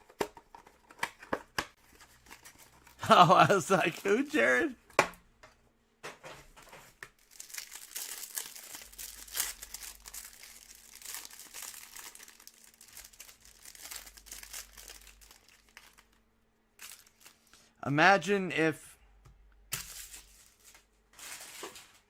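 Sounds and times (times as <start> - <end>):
plastic wrapping crinkling and tearing: 7.1 - 16.2, 16.8 - 17.7.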